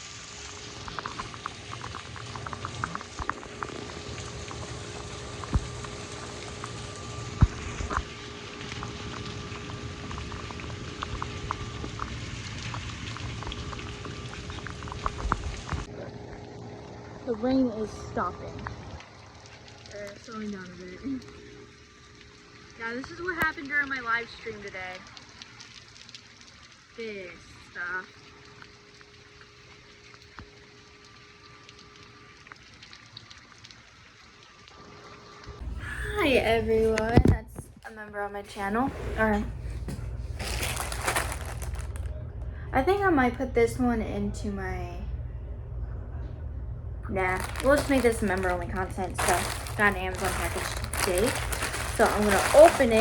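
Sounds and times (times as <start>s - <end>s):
steady rain hiss: 0.0s - 37.1s
drips pattering: 40.4s - 42.1s, 47.2s - 53.0s.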